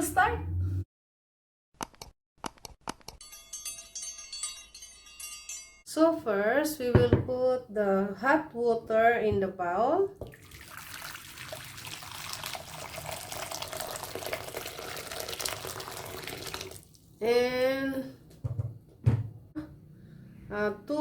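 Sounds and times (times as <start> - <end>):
water pouring into a bowl: 10.2 - 17.0
thump: 18.4 - 19.3.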